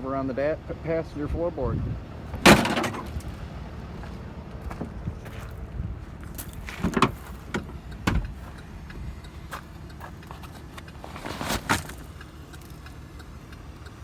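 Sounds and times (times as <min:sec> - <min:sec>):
steady low rumble: 0:00.0 - 0:14.0
sharp knocks and clanks: 0:02.4 - 0:03.4, 0:06.4 - 0:08.6.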